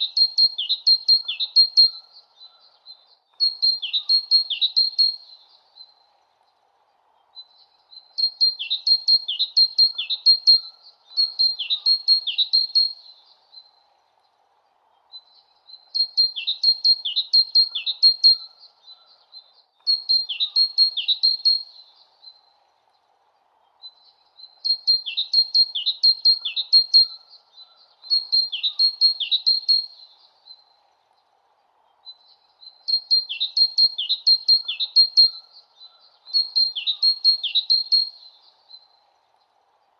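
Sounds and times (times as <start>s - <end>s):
bird tweeting: 0.0s - 2.6s, 3.3s - 5.4s, 8.2s - 13.2s, 16.0s - 19.1s, 19.8s - 21.8s, 24.6s - 30.3s, 32.6s - 38.9s.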